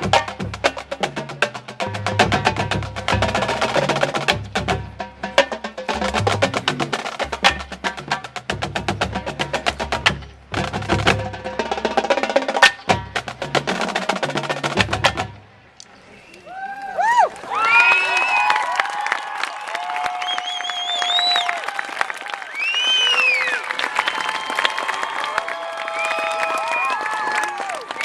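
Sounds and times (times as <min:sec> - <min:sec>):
pitched bass drums: 0:00.0 - 0:15.4.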